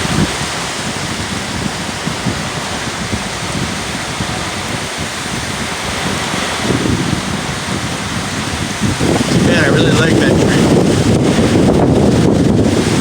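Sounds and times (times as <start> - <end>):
strong wind blowing: 0.0 - 13.0
wind buffeting microphone: 0.0 - 13.0.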